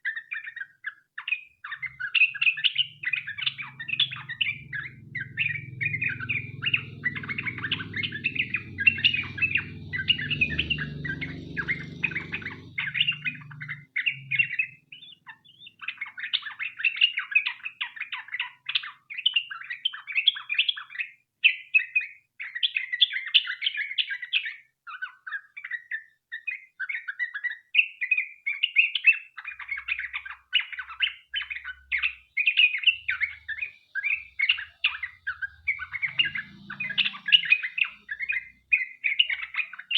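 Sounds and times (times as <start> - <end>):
bird singing chattering phrases: 0.0 - 39.9
low rumble: 2.8 - 14.7.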